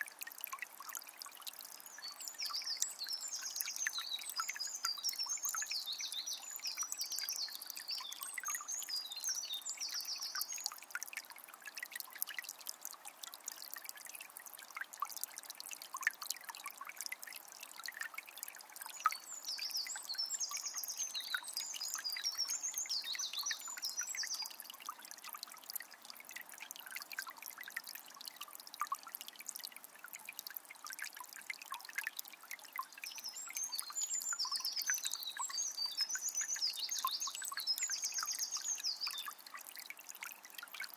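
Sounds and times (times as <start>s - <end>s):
songbird singing: 1.8s - 10.8s, 18.9s - 24.7s, 32.9s - 39.6s.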